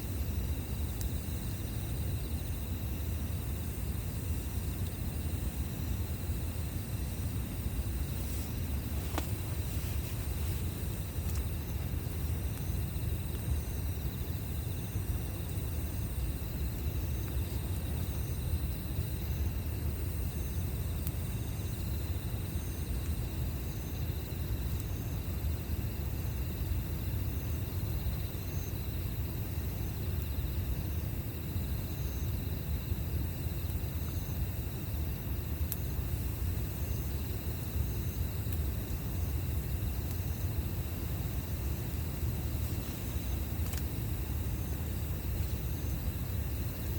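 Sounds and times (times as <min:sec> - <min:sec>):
steady low rumble: 0:00.0 - 0:21.7
campfire crackling: 0:00.0 - 0:46.9
insect chirps: 0:00.0 - 0:46.9
insects trilling: 0:00.0 - 0:46.9.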